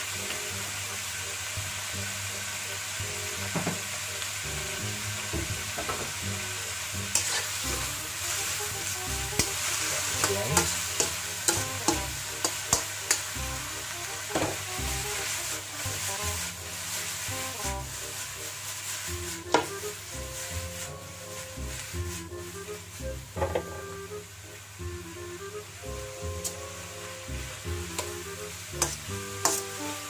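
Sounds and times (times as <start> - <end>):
vegetables sizzling in a wok: 0.0 - 30.0
spatula scraping a wok: 6.2 - 23.9, 26.3 - 30.0.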